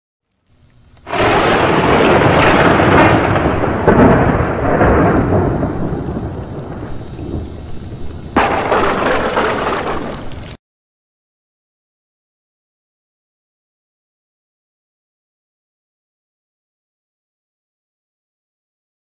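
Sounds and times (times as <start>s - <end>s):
sharp thunder crack: 1.1s - 10.4s
rain: 1.1s - 10.6s
thunder rumbling: 1.1s - 10.6s.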